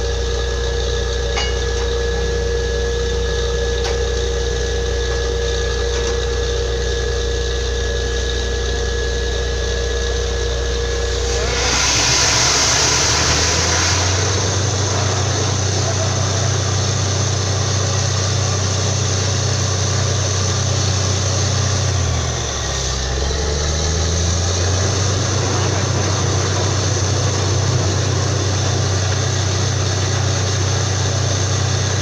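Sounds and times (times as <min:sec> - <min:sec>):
drilling rig engine running: 0:00.0 - 0:32.0
loud rushing hiss: 0:11.0 - 0:21.8, 0:23.9 - 0:32.0.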